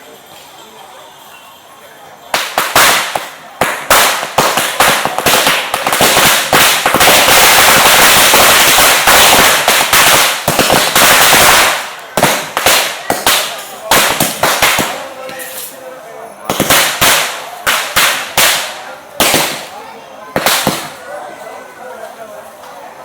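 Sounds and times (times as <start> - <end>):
firecrackers banging: 2.2 - 21.3.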